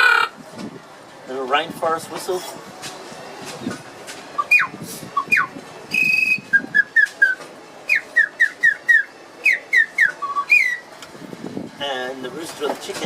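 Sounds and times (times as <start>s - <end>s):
bird-call whistle chirps: 4.4s - 10.8s.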